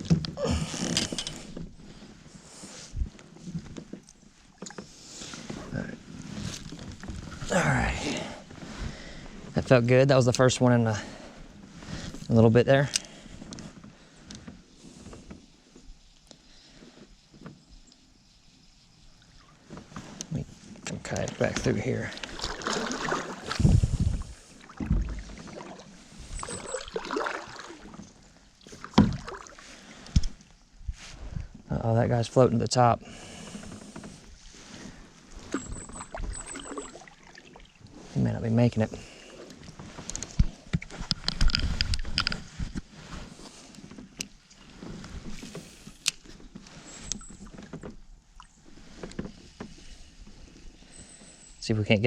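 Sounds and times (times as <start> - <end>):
paddle splashing in water: 21.5 - 30.1, 33.2 - 38.2.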